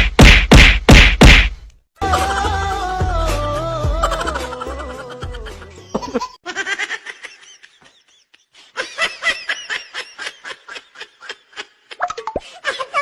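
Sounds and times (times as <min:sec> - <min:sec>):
music: 0:02.0 - 0:06.0
high-pitched laughter: 0:04.0 - 0:13.0.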